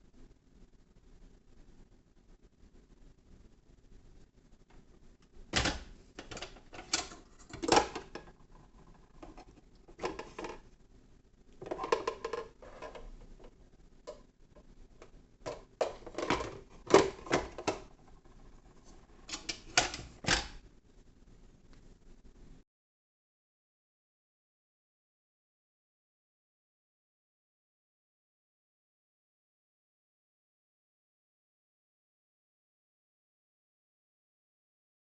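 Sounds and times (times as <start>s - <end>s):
hard objects clicking and clattering: 5.6s - 10.7s, 11.6s - 14.2s, 15.0s - 18.0s.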